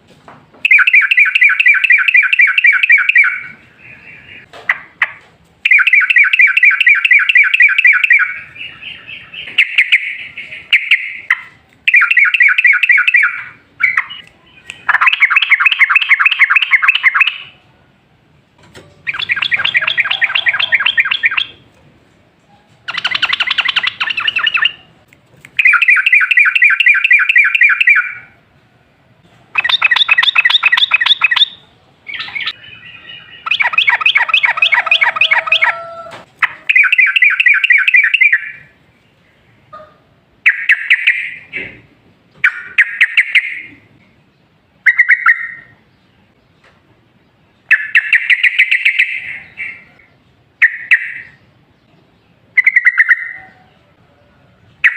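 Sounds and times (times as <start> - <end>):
bird singing chattering phrases: 2.3 - 17.6, 19.0 - 21.7, 22.8 - 25.0, 29.5 - 35.8, 47.6 - 53.9.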